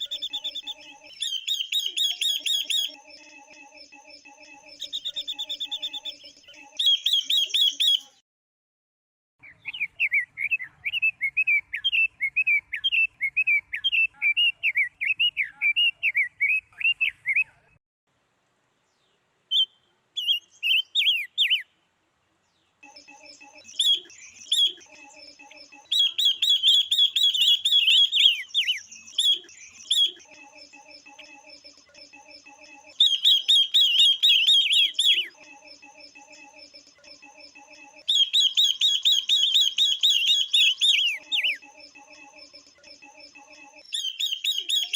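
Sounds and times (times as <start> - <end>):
birds chirping rapidly: 0.0 - 8.2, 9.4 - 17.7, 18.9 - 44.9
low repeated bird piping: 0.0 - 8.2, 18.8 - 44.9.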